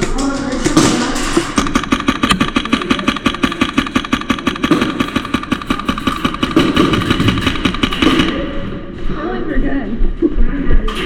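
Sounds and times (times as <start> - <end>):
airsoft gun firing full auto: 1.4 - 8.6.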